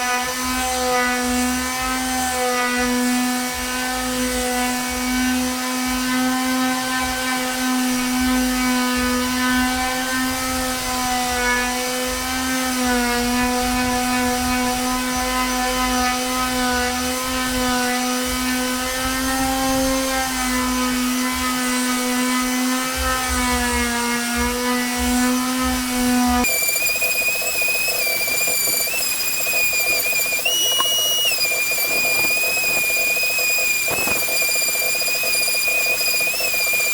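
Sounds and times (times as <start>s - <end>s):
electric wood sander humming: 0.1s - 36.9s
high whistle-like tone: 26.4s - 36.9s.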